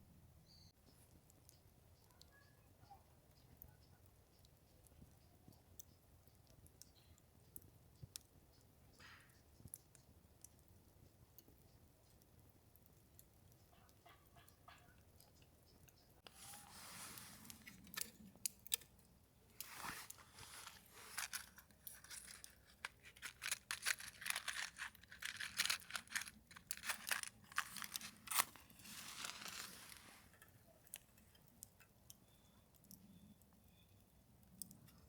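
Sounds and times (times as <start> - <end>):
crinkling and tearing handling noises: 16.2 - 31.4.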